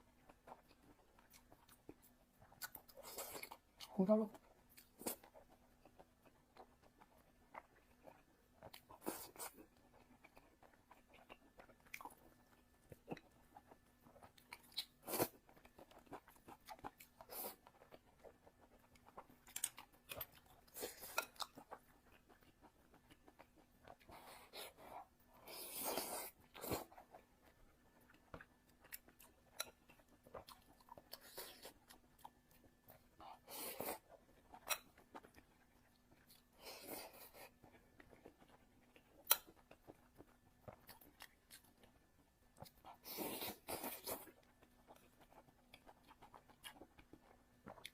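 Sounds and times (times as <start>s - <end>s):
person chewing food: 0.0s - 47.9s.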